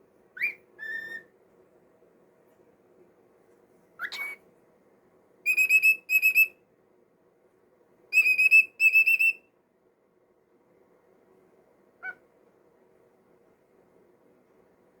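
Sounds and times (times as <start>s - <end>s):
cockatiel whistling: 0.4s - 1.3s, 4.0s - 4.4s, 5.5s - 6.6s, 8.1s - 9.4s.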